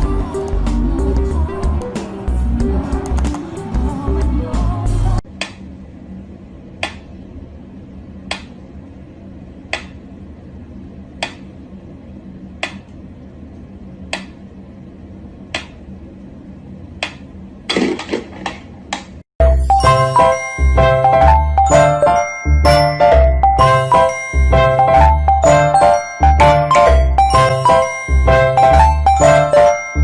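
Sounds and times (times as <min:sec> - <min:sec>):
metronome ticking: 0:19.4 - 0:30.0.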